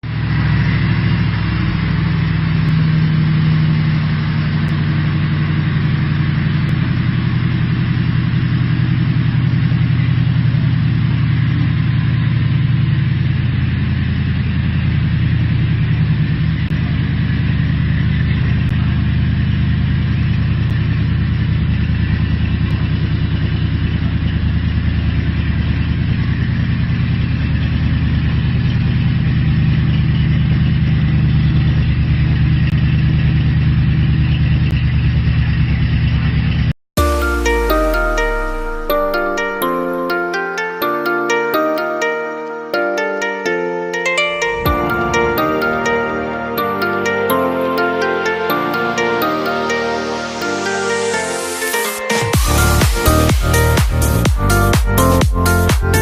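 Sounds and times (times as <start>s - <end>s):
car engine idling: 0.0s - 39.5s.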